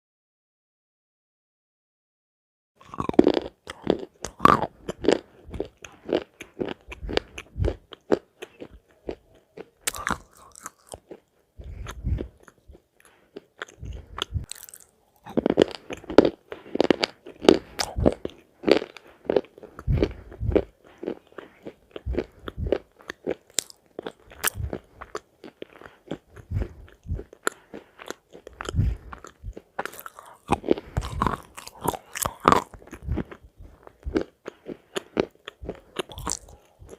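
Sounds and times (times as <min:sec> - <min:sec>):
person chewing crunchy food: 0:02.8 - 0:36.9.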